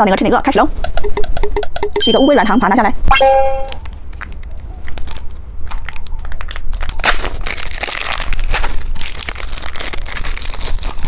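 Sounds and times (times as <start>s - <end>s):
plastic candy wrapper crinkling: 6.0s - 11.0s.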